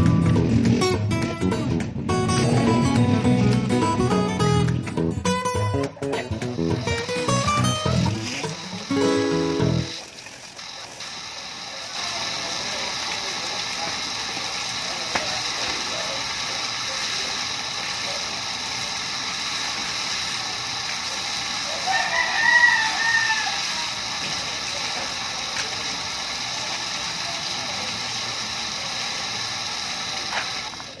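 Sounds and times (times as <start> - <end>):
steady hiss: 6.2 - 31.0
rooster crowing: 21.7 - 23.8.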